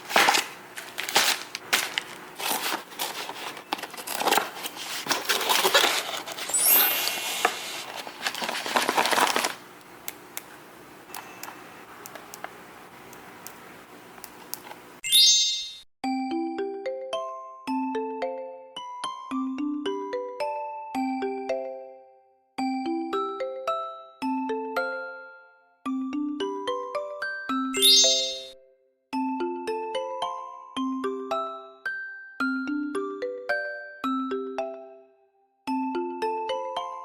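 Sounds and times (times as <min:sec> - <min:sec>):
plastic packaging crinkling: 0:00.0 - 0:09.7
glockenspiel-like music tune: 0:15.0 - 0:37.0
bright chime: 0:27.8 - 0:28.6.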